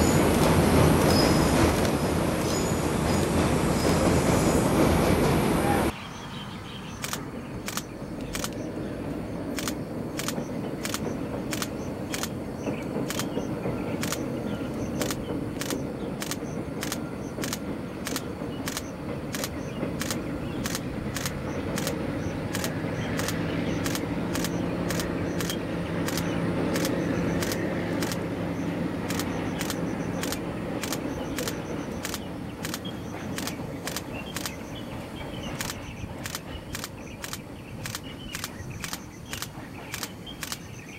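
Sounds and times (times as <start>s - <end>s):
distant train rumble: 0.0s - 40.9s
sharp clicks: 0.2s - 4.1s, 7.0s - 8.7s, 9.5s - 34.8s, 35.4s - 40.8s.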